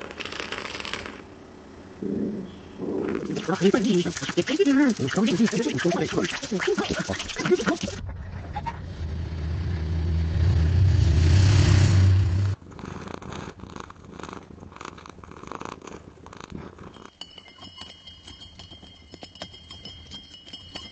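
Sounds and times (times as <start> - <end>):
cat purring: 2.0 - 10.4, 12.2 - 17.1.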